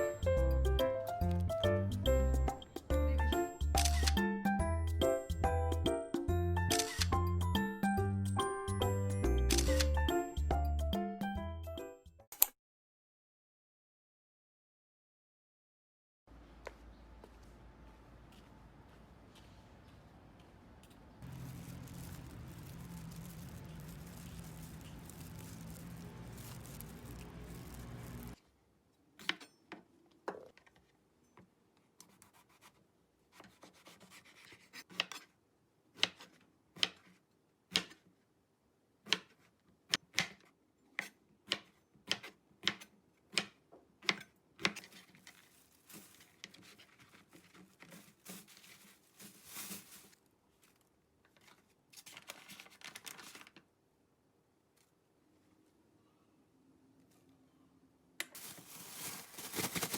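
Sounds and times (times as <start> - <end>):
scraping and rustling: 21.2 - 28.4, 44.8 - 50.8, 58.4 - 59.9.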